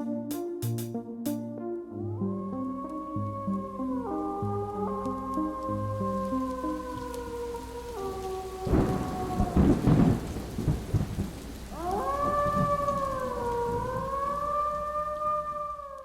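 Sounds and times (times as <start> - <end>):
synthesizer chord: 0.0 - 6.0
synth chord sliding up like a howl: 0.0 - 9.8
rumbling thunder-like noise effect: 8.7 - 14.2.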